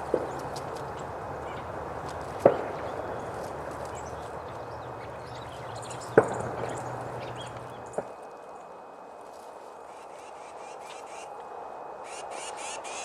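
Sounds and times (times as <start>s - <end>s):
low hum: 0.0s - 13.0s
steady rushing background: 0.0s - 13.0s.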